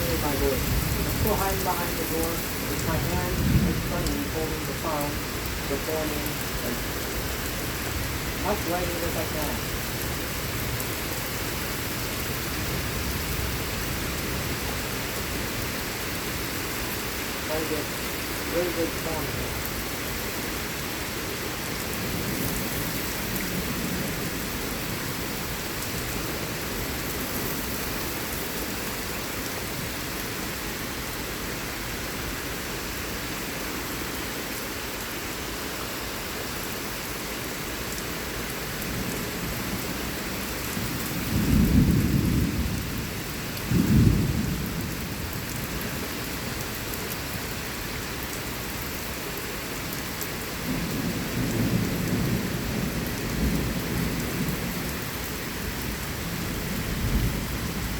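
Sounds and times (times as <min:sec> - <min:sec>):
low rumbles of thunder: 0:00.0 - 0:10.9, 0:38.9 - 0:46.1, 0:50.6 - 0:57.9
heavy rain falling: 0:00.0 - 0:57.9.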